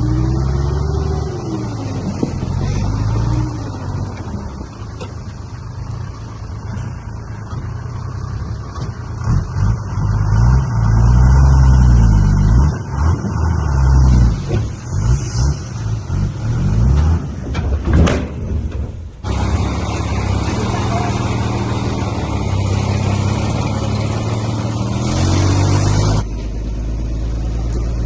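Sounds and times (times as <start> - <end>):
diesel engine revving: 0.0 - 18.0, 18.6 - 28.0.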